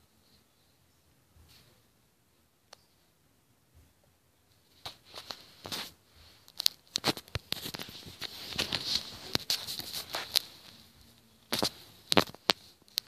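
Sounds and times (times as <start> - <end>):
rustling and scratching: 4.5 - 13.0
small clicks and scrapes: 4.8 - 13.0.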